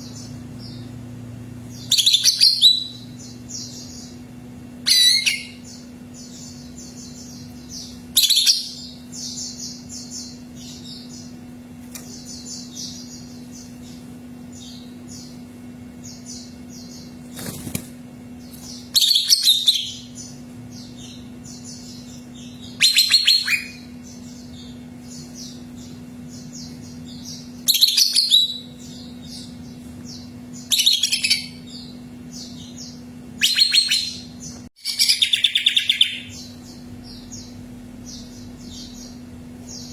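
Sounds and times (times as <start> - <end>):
bird singing high rapid phrases: 0.0 - 39.9
steady low hum: 0.0 - 39.9.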